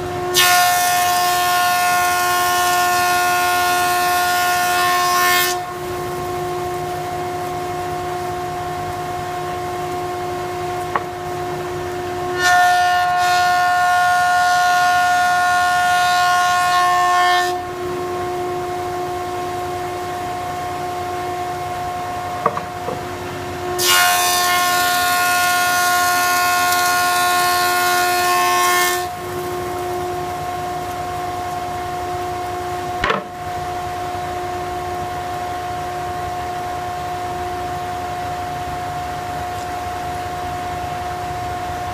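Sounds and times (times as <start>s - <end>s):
thickness planer whining: 22.0s - 30.4s.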